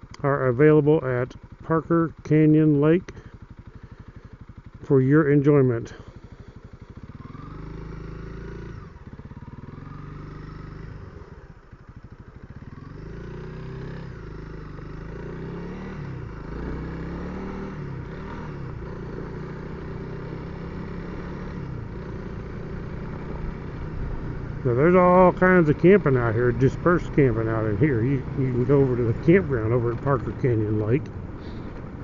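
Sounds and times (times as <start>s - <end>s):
motorcycle engine accelerating: 0.0s - 32.0s.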